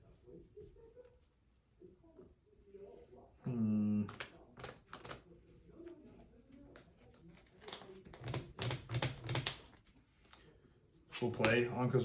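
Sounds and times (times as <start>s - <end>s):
cards clicking and slapping on table: 4.0s - 5.2s, 6.7s - 9.9s, 11.1s - 11.7s.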